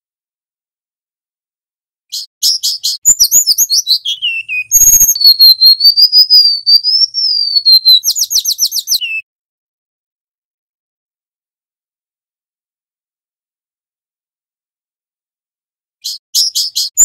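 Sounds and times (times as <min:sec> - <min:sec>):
bird singing high notes: 0:02.4 - 0:09.2.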